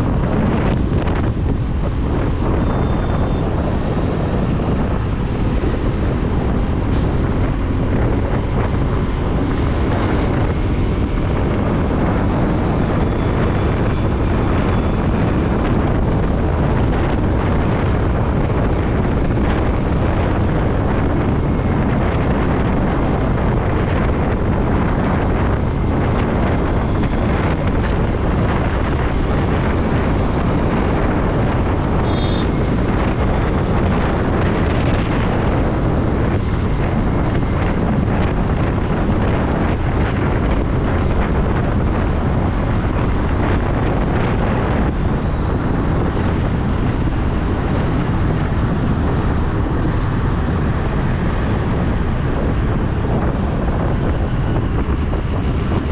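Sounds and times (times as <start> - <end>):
motorcycle engine and road noise: 0.0 - 55.9
wind rushing over microphone: 0.0 - 55.9
short high beep: 32.0 - 32.5.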